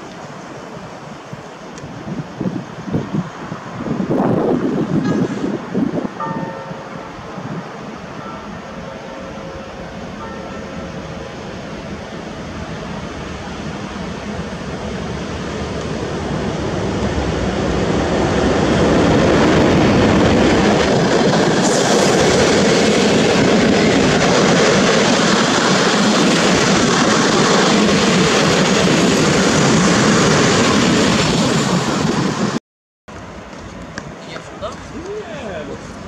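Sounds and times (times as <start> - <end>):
train passing rumbling and rattling: 0.0 - 36.0.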